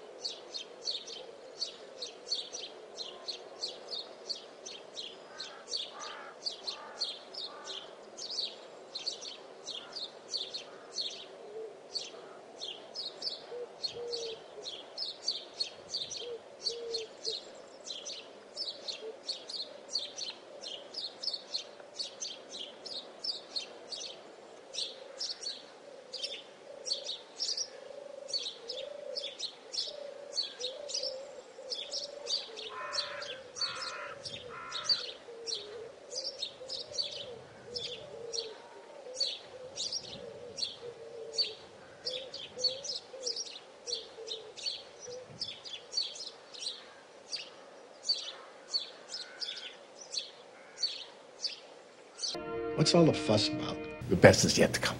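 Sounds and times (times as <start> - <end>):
birds chirping: 0.0 - 11.3, 52.2 - 54.9
lower wavering bird call: 52.3 - 54.2
brief lower notes: 52.4 - 54.9.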